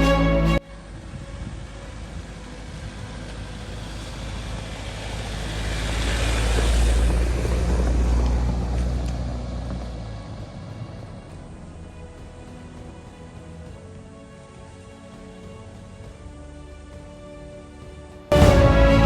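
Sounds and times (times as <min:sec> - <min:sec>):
vehicle driving past: 0:00.7 - 0:12.0, 0:18.3 - 0:19.0.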